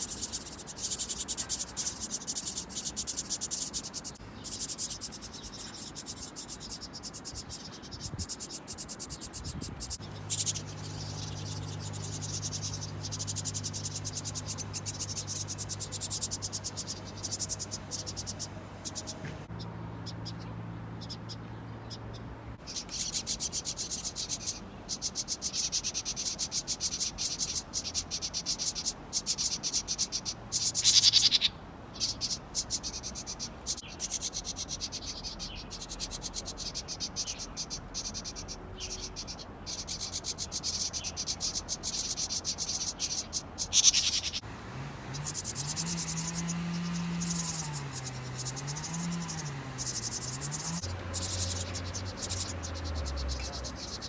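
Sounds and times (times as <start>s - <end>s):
insects chirping: 0.0s - 19.6s, 44.0s - 54.0s
low wavering hum: 9.6s - 19.7s, 44.4s - 54.0s.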